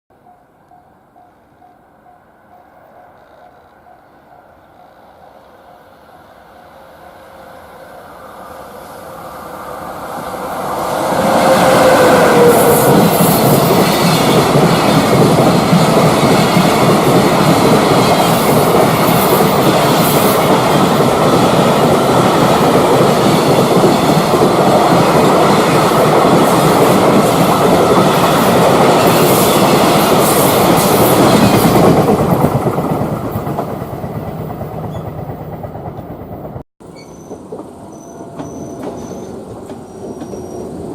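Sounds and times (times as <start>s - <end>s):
freight train wheels rumbling on rails: 8.2s - 40.9s.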